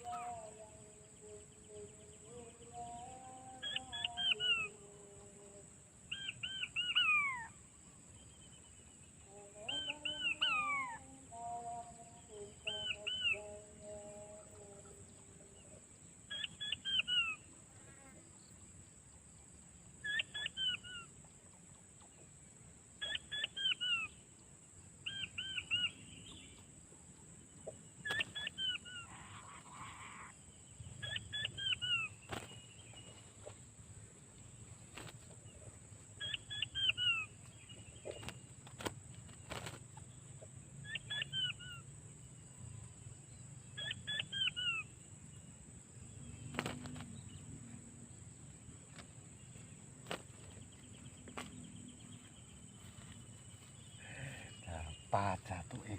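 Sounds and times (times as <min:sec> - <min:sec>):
insects whining: 0:00.0 - 0:55.9
quail piping calls: 0:06.1 - 0:07.5, 0:09.7 - 0:11.0, 0:16.3 - 0:17.4, 0:20.0 - 0:21.1, 0:23.0 - 0:24.2, 0:27.6 - 0:30.3, 0:30.9 - 0:32.6, 0:36.2 - 0:38.9, 0:40.8 - 0:41.8, 0:43.8 - 0:45.0.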